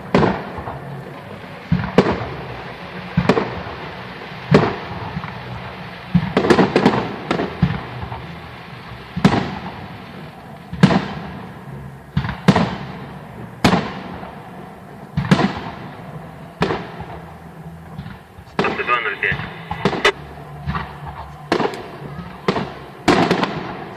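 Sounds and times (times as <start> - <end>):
fireworks bursting: 0.0 - 23.9.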